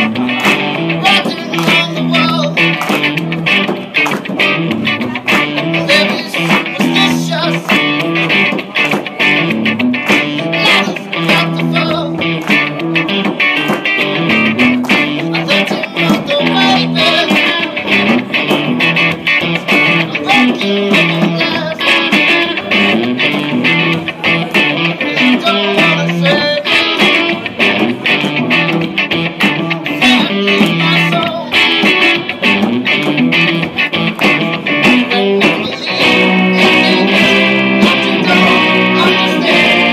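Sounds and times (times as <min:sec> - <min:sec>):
live guitar band music: 0:00.0 - 0:39.9.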